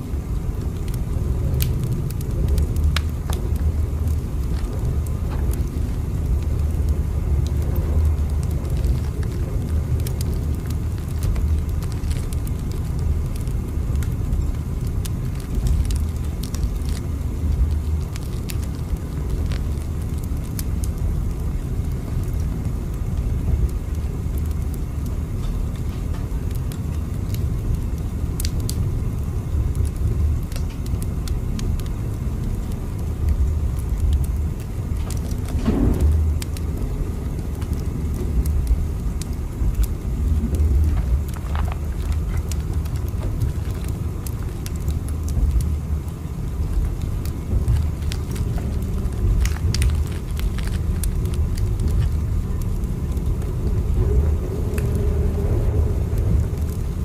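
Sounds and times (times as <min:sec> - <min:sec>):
train rumbling from inside carriage: 0:00.8 - 0:28.7, 0:29.5 - 0:45.8, 0:46.6 - 0:57.0
light clicks and creaks: 0:35.0 - 0:45.7, 0:46.6 - 0:57.0.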